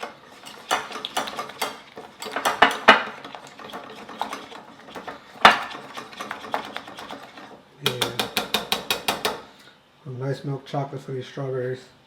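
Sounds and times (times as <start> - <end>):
kitchen utensils clinking: 0.0 - 9.4.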